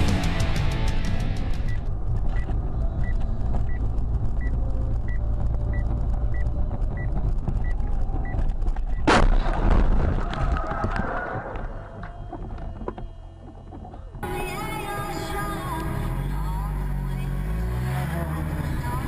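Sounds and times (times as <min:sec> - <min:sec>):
car engine and road rumble: 0:00.0 - 0:09.4, 0:10.7 - 0:19.0
loud sudden bang: 0:09.1 - 0:10.4.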